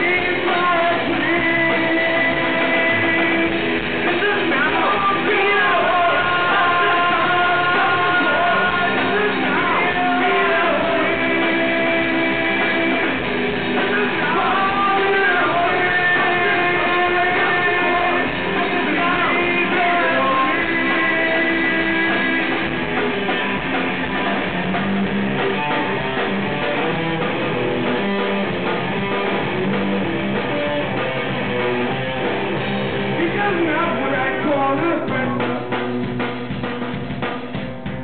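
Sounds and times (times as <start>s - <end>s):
person singing: 0.0s - 22.8s, 33.1s - 35.9s
bass: 0.0s - 38.0s
drums: 0.0s - 38.0s
electric guitars: 0.0s - 38.0s.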